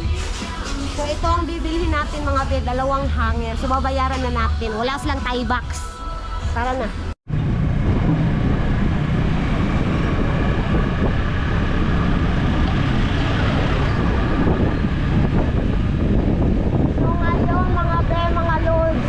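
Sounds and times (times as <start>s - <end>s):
motorcycle running: 7.3s - 19.0s
wind buffeting microphone: 7.3s - 19.0s.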